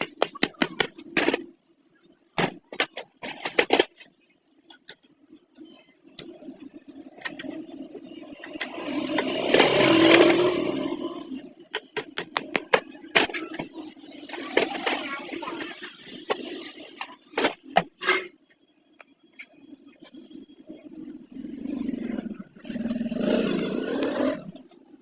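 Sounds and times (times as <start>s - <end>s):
small metallic clicks and taps: 2.6s - 7.8s
motor vehicle passing: 6.2s - 11.7s, 19.5s - 24.8s.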